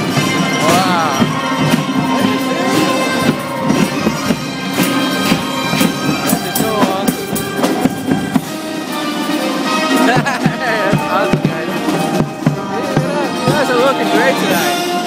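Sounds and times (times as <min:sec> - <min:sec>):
sustained instrumental tones: 0:00.0 - 0:15.0.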